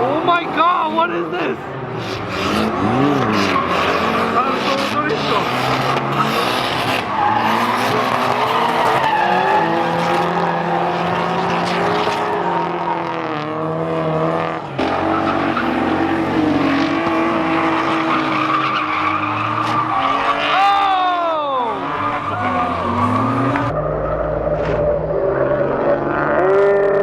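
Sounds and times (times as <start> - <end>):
car engines revving: 0.0 - 27.0
tyres squealing: 17.4 - 23.7.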